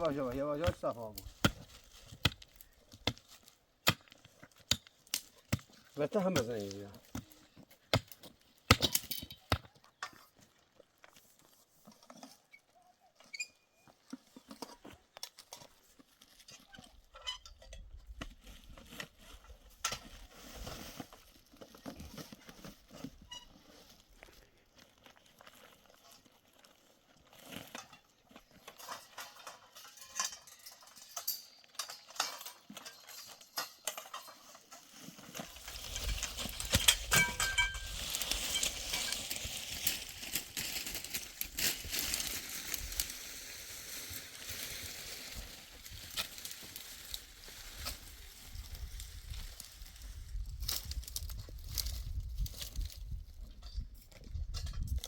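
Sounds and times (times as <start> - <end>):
livestock rustling: 18.4 - 30.0, 31.6 - 53.0.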